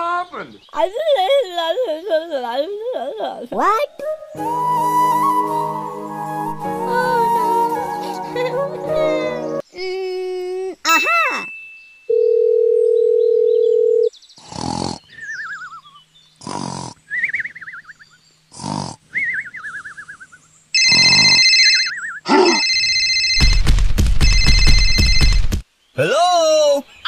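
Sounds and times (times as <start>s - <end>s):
phone ringing: 12.1s - 14.1s, 20.8s - 23.6s, 24.2s - 25.6s
cartoon snores with whistle: 14.4s - 15.3s, 16.4s - 17.5s, 18.5s - 19.7s, 20.9s - 21.4s.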